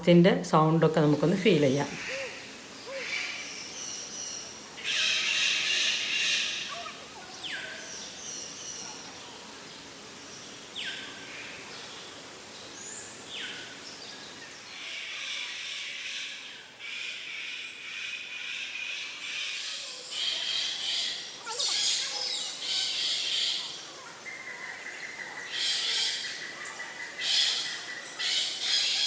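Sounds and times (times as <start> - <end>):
dense high bird chirping: 1.0 - 14.7, 19.3 - 29.0.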